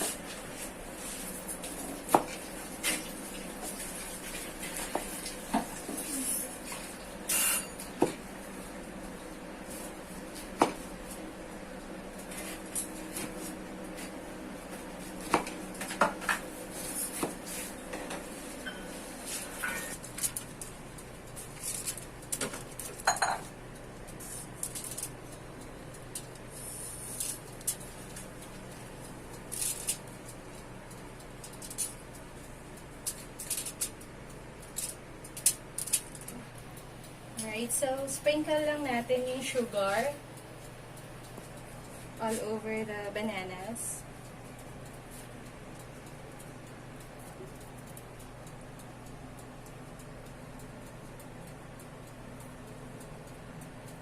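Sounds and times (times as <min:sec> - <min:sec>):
kitchen utensils and dishes clinking: 0:07.3 - 0:08.0, 0:19.5 - 0:20.0.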